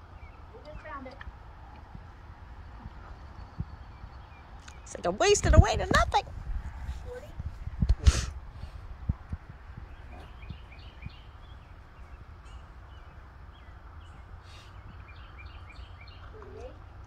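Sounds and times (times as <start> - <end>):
songbird chirping: 0.0 - 6.2, 9.3 - 17.0.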